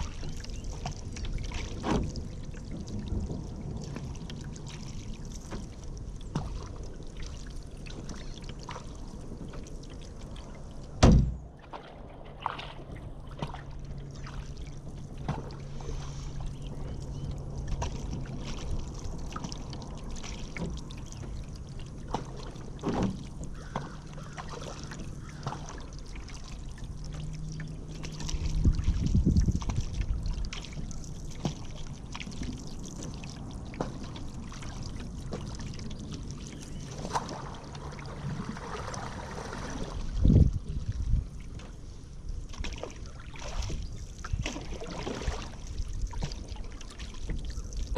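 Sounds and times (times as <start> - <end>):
water dripping off paddle: 0.0 - 11.0, 11.6 - 41.8, 42.4 - 47.9
small splashes: 0.0 - 47.9
loud sharp knock: 11.0 - 11.4
kayak paddle strokes: 22.0 - 47.9.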